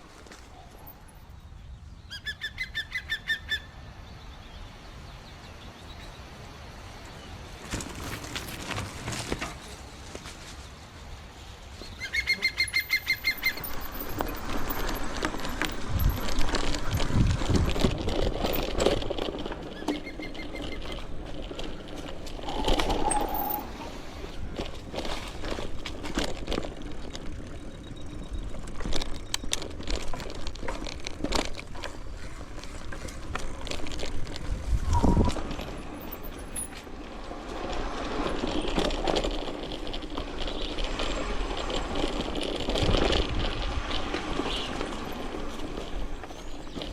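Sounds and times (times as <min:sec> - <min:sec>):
bicycle frame and chain rattling: 0:07.6 - 0:10.7, 0:12.6 - 0:46.9.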